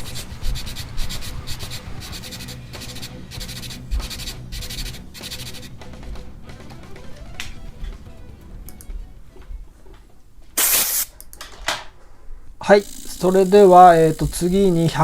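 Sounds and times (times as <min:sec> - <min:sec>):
sandpaper sanding: 0:00.0 - 0:05.7.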